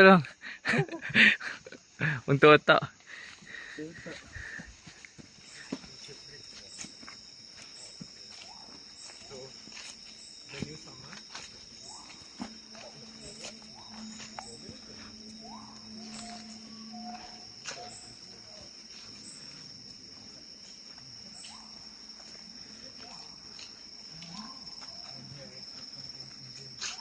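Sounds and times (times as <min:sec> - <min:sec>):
insects shrilling: 0:00.0 - 0:27.0
hikers clicks and knocks: 0:04.1 - 0:14.6.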